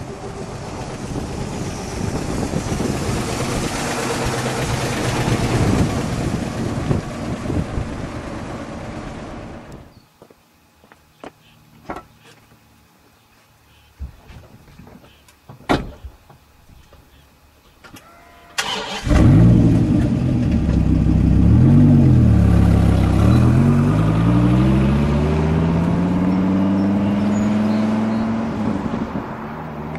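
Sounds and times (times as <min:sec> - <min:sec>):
car engine starting and revving: 0:00.0 - 0:09.8, 0:18.6 - 0:29.9.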